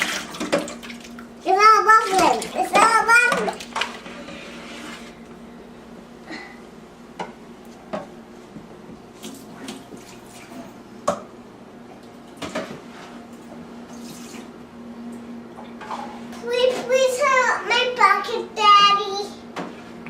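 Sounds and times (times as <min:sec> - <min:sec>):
water sloshing and dripping: 0:00.0 - 0:04.2, 0:09.1 - 0:10.7, 0:13.9 - 0:14.5
dishes clinking in water: 0:02.2 - 0:04.0.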